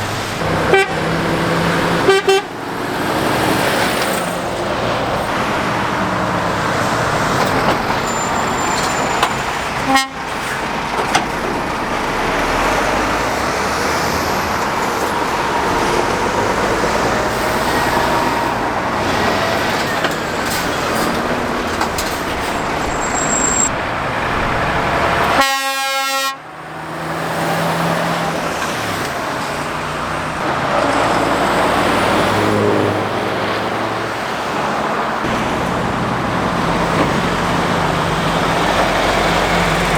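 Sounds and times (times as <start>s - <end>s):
road traffic passing: 0.0s - 39.9s
truck horn toot: 0.4s - 2.7s, 8.0s - 10.6s, 25.2s - 26.6s.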